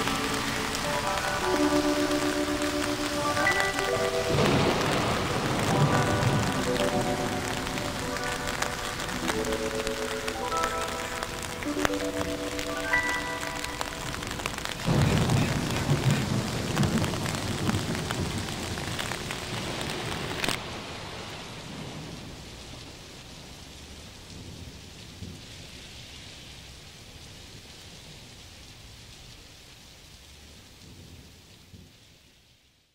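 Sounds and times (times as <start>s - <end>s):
rolling thunder rumble: 0.0s - 23.0s
steady rain: 0.0s - 32.9s.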